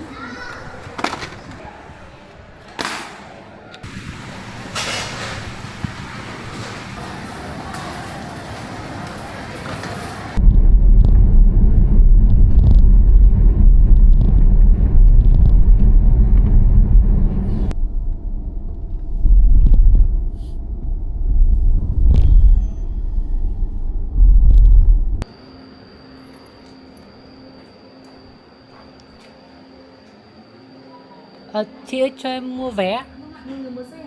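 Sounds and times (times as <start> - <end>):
low rumble of moving car: 10.4 - 25.2.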